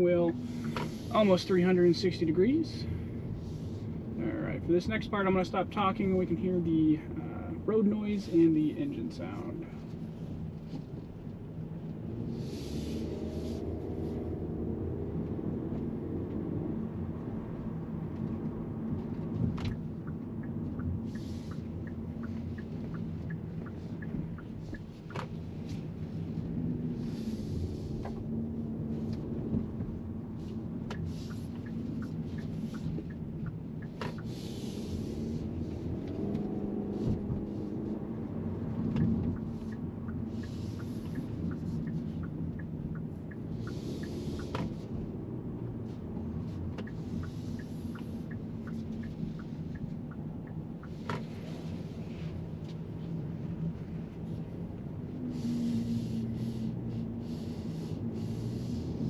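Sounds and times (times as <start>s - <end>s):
car engine humming: 0.0s - 59.0s
tyre and road noise: 0.0s - 59.0s
faint ticks: 29.0s - 56.9s.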